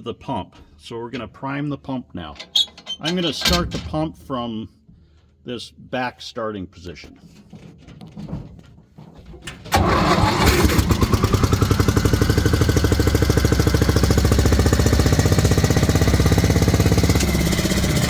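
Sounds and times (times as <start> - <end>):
engine driving water pump: 9.7 - 18.0.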